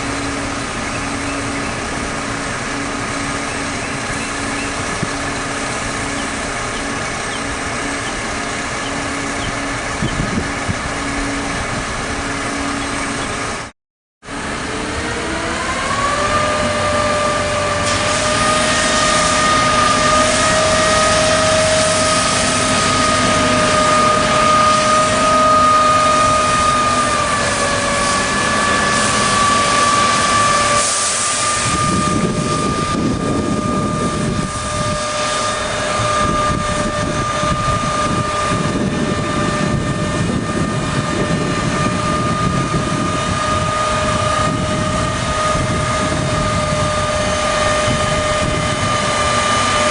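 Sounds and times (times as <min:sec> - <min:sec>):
diesel truck engine revving: 0:00.0 - 0:13.7, 0:14.3 - 0:49.9
rushing hiss of spraying water: 0:17.8 - 0:20.6, 0:26.9 - 0:31.8.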